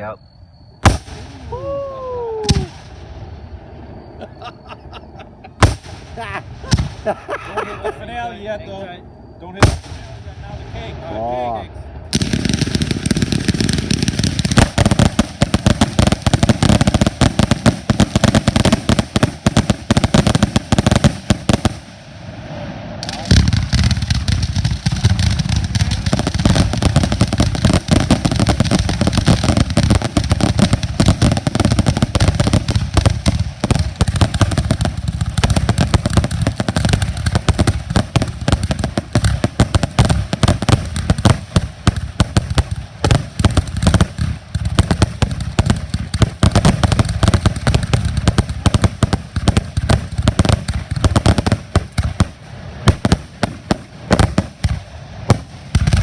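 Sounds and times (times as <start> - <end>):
firework cake bangs and crackles: 0.8 - 1.7, 2.5 - 3.1, 5.6 - 7.2, 9.6 - 10.4, 12.1 - 22.1, 23.0 - 56.0.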